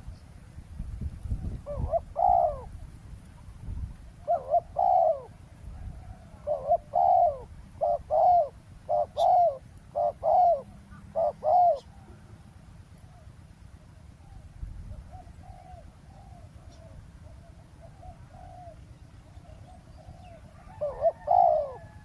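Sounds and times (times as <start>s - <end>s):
dove cooing: 1.4s - 2.8s, 4.2s - 12.4s, 14.1s - 22.0s.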